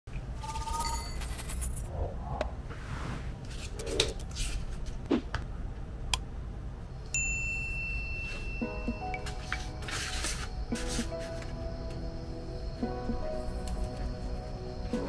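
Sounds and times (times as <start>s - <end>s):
steady high tone: 0.2s - 2.5s.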